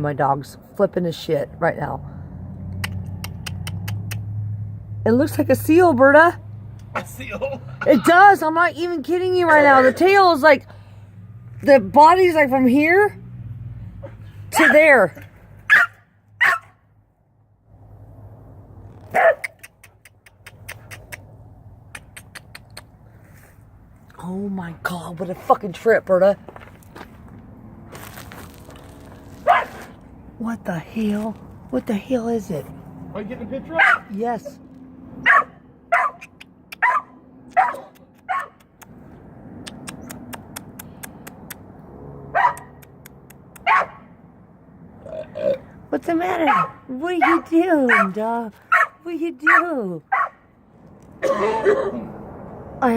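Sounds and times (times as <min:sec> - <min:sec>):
dog barking: 0:15.7 - 0:16.8, 0:19.1 - 0:19.6, 0:29.4 - 0:29.8, 0:33.8 - 0:34.1, 0:35.2 - 0:38.6, 0:42.3 - 0:42.8, 0:43.6 - 0:44.1, 0:46.5 - 0:50.4
sharp clicks: 0:19.4 - 0:23.0, 0:39.6 - 0:41.7.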